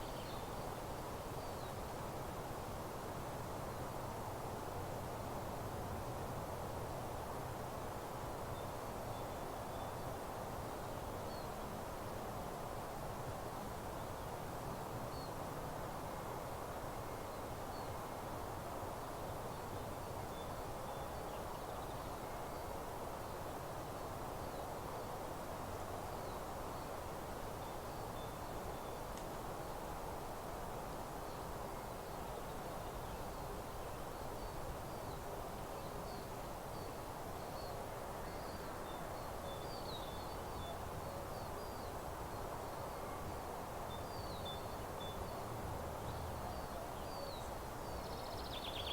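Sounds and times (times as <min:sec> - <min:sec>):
meadow background noise: 0:00.0 - 0:48.9
faint high bird chirps: 0:46.4 - 0:48.9.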